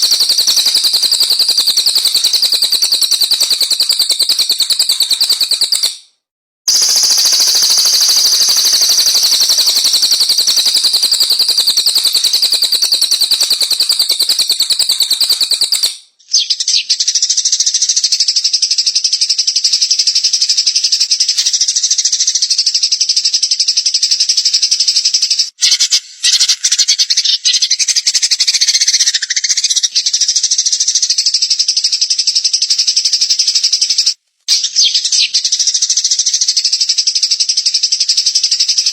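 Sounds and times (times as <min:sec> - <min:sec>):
songbird buzzing trill: 0:06.7 - 0:15.9.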